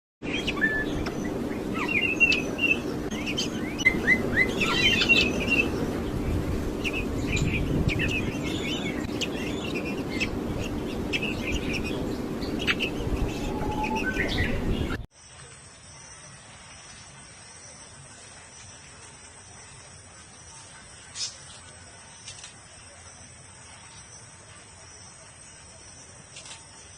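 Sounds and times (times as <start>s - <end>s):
parrots chirping: 0.2s - 15.0s
steady low hum: 0.2s - 15.1s.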